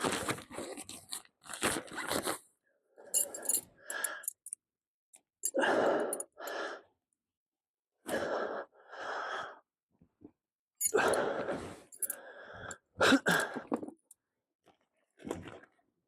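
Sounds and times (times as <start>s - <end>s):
person breathing heavily: 3.2s - 4.5s, 5.5s - 6.9s, 8.1s - 9.6s, 10.8s - 13.7s.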